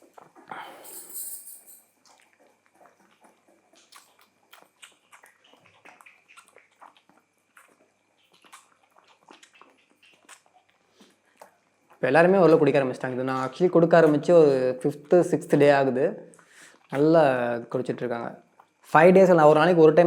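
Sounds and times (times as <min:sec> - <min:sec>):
puppy suckling from bottle: 0:02.0 - 0:15.6.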